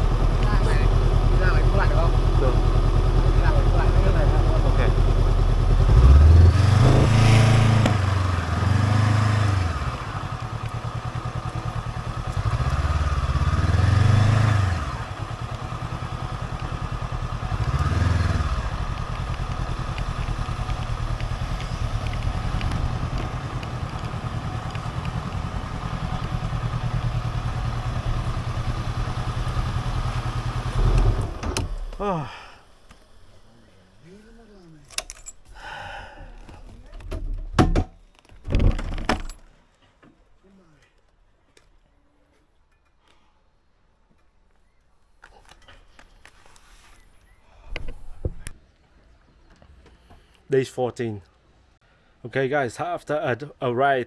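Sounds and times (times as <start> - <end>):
motorcycle engine revving: 0.0 - 32.2.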